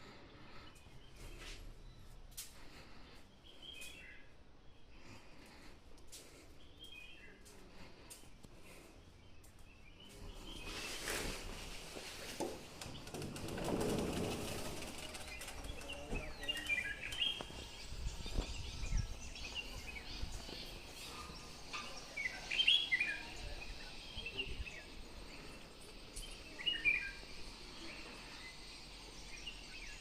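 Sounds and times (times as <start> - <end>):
birds chirping: 0.0 - 30.0
faint outdoor hiss: 0.0 - 30.0.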